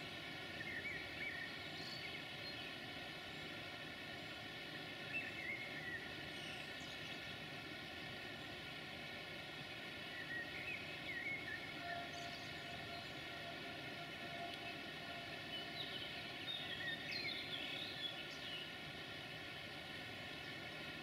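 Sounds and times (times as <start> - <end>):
steady multi-tone hum: 0.0 - 21.0
birds chirping: 10.0 - 13.6, 14.2 - 18.8.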